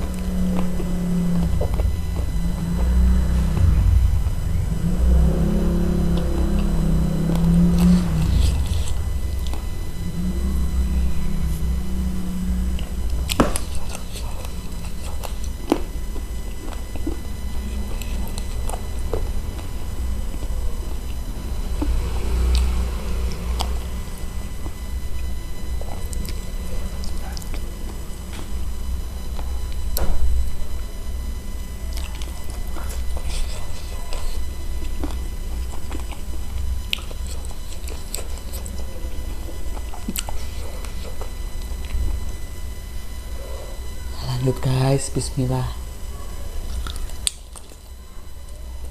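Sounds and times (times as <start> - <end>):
steady low hum: 0.0 - 48.9
wet chewing and sucking: 5.3 - 10.1, 12.6 - 25.2, 31.9 - 42.2.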